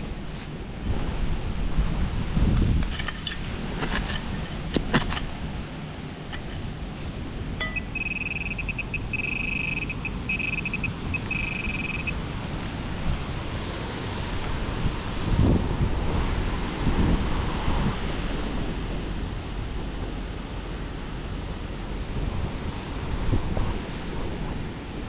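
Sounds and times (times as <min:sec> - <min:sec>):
sharp clicks: 0:07.6 - 0:12.7
metal detector beeping: 0:07.6 - 0:12.8
wind buffeting microphone: 0:10.0 - 0:25.0.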